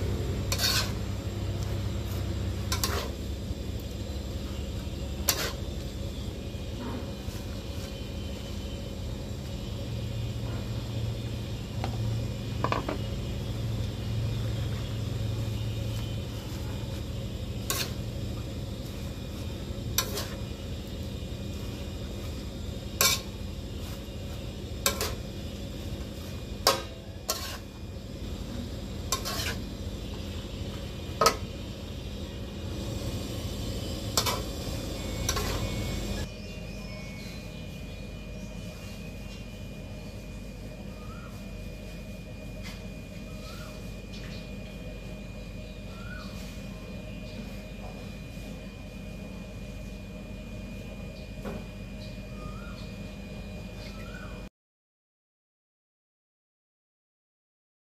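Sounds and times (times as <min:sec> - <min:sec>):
food sizzling in a wok: 0:00.0 - 0:36.3.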